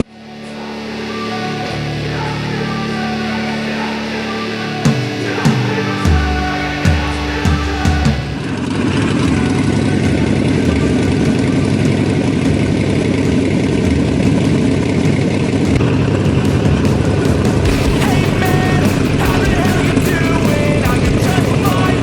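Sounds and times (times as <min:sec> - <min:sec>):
motorcycle engine running: 0:04.9 - 0:22.0.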